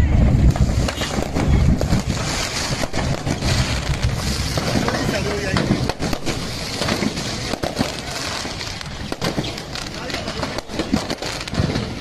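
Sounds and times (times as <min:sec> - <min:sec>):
dense noisy background: 0:00.0 - 0:12.0
people talking: 0:04.8 - 0:05.8, 0:09.4 - 0:10.9.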